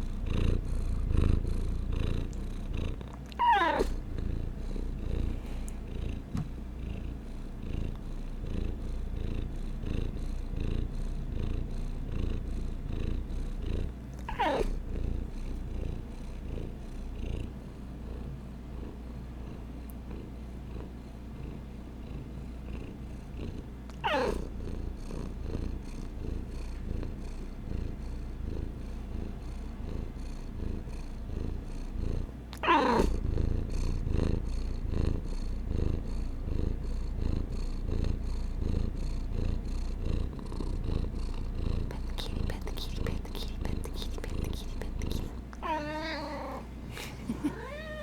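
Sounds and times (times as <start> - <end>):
cat purring: 0.0 - 48.0
cat meowing: 3.4 - 4.0, 45.6 - 46.6, 47.4 - 48.0.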